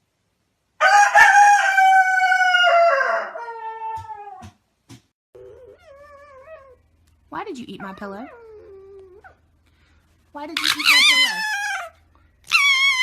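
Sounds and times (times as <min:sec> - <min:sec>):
rooster crowing: 0:00.8 - 0:04.1
dog whimpering: 0:05.4 - 0:06.8, 0:07.8 - 0:09.4, 0:10.6 - 0:13.0.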